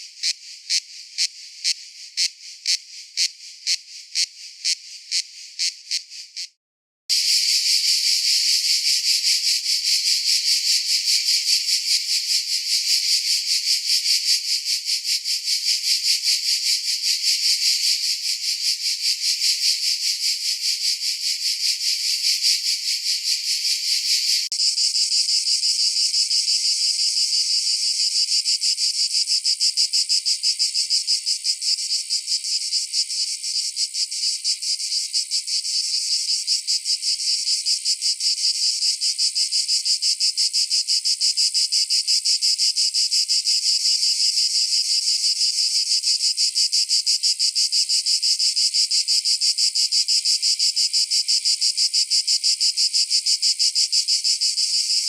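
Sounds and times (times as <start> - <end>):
cicadas buzzing: 0.0 - 6.5, 7.1 - 38.5.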